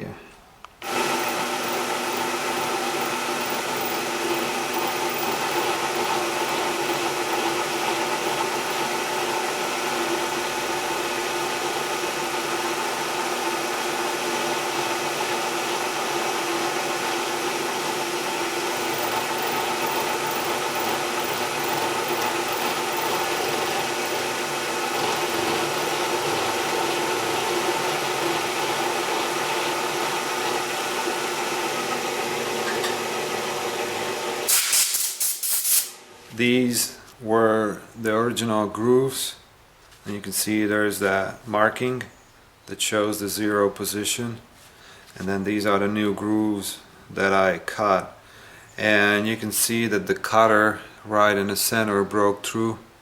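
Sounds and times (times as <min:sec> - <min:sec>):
milling machine whirring: 0:00.8 - 0:34.5.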